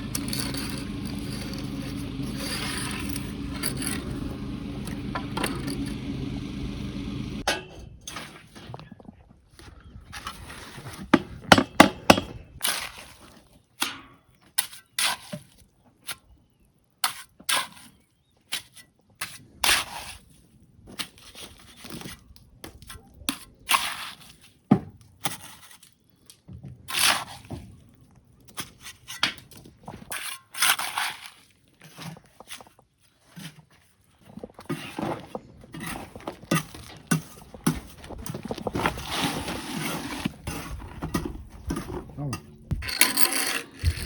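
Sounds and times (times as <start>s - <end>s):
short scraping rasps: 0.0s - 7.5s
knocks and bangs of building work: 11.2s - 12.4s.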